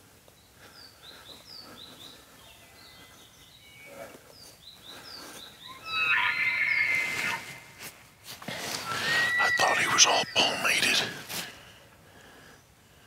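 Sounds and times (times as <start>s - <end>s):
outdoor background hiss: 0.0s - 13.0s
bird chirping: 0.4s - 7.8s, 8.8s - 11.1s.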